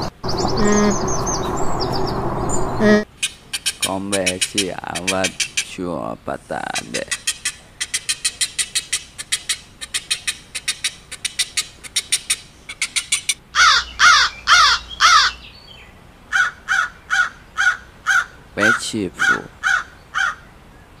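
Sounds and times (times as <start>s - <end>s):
crow cawing: 13.5s - 15.4s, 16.3s - 20.5s.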